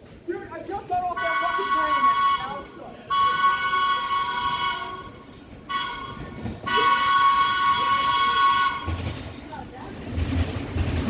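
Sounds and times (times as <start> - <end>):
train horn blasts: 1.2 - 9.0.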